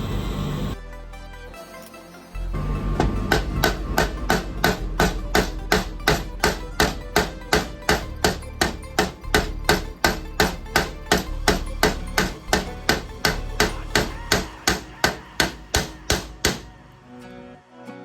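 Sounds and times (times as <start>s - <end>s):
hammer striking: 2.8s - 16.8s.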